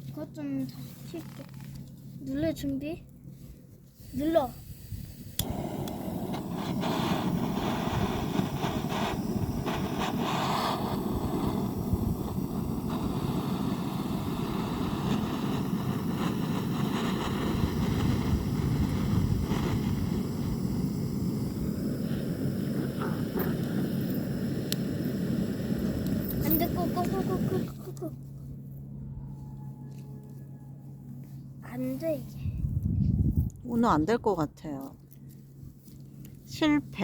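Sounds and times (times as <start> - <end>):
gas torch hissing: 4.0 - 28.0.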